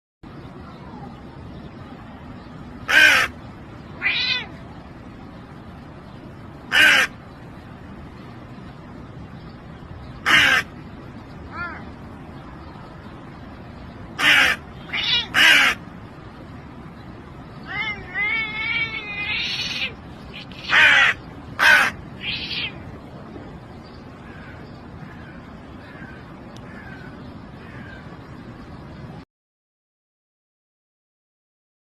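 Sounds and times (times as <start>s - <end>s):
crow cawing: 2.9s - 3.3s, 6.7s - 7.1s, 10.2s - 10.7s, 14.2s - 15.8s, 20.7s - 22.7s, 24.2s - 28.0s
bird harsh calls: 2.9s - 3.4s, 6.7s - 7.2s, 10.1s - 10.7s, 14.2s - 15.8s, 17.6s - 22.8s
cat meowing: 4.0s - 4.6s, 14.8s - 15.8s, 17.6s - 21.0s, 21.7s - 22.8s.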